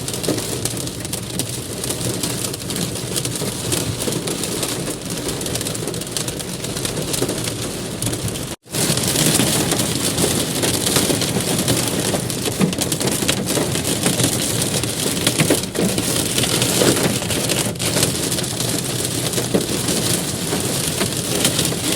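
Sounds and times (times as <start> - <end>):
hail pelting hard surfaces: 0.0 - 21.9.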